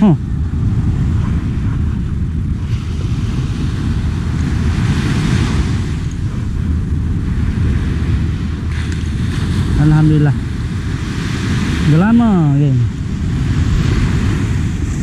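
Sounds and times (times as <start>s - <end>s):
small waves washing up: 0.0s - 15.0s
wind buffeting microphone: 0.0s - 15.0s.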